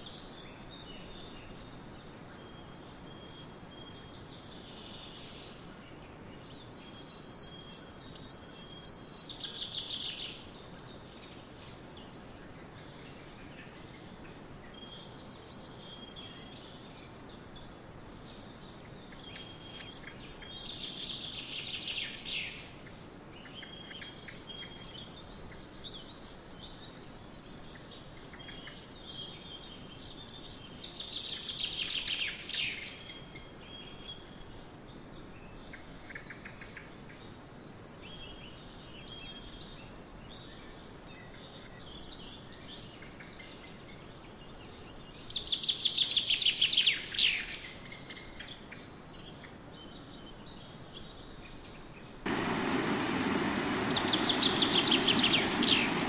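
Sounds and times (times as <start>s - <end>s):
faint steady hiss: 0.0s - 56.0s
soft bird chirps: 44.6s - 56.0s
songbird trilling: 52.4s - 56.0s.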